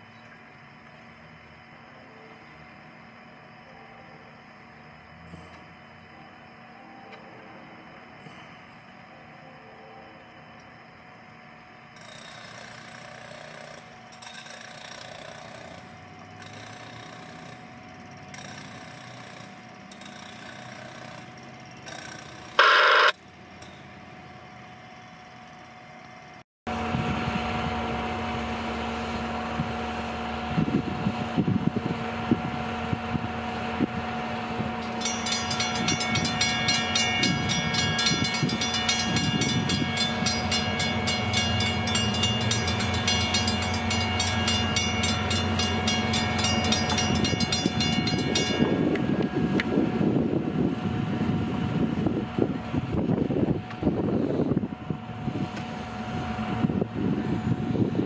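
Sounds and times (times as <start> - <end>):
locomotive drone: 0.0 - 58.0
train rail sounds: 32.7 - 50.2
train cars clattering on rails: 34.8 - 49.4.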